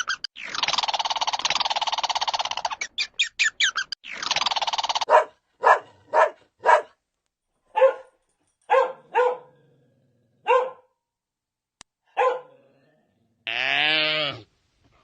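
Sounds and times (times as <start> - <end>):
dog barking: 5.1 - 7.0, 7.7 - 9.6, 10.4 - 11.0, 12.1 - 12.6.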